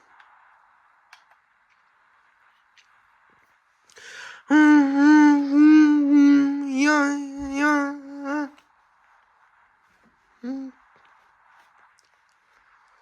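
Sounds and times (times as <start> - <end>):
person humming: 4.2 - 8.6, 10.4 - 10.8.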